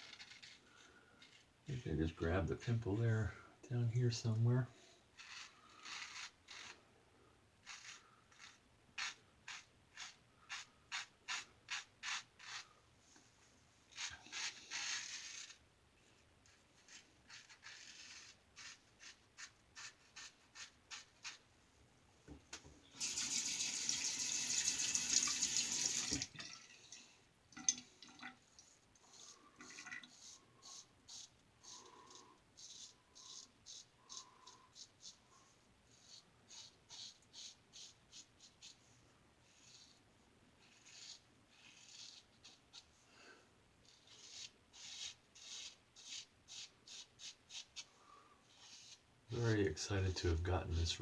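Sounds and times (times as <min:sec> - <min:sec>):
razor scraping stubble: 0:00.0 - 0:03.3, 0:05.2 - 0:06.8, 0:07.6 - 0:12.7, 0:13.9 - 0:15.6, 0:16.5 - 0:21.4
tap running water: 0:23.0 - 0:26.8, 0:27.6 - 0:28.4.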